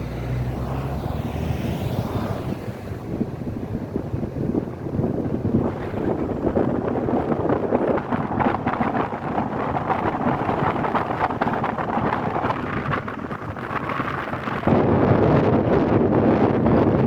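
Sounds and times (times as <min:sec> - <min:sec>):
road and traffic noise: 0:00.0 - 0:17.0
wind buffeting microphone: 0:00.0 - 0:17.0.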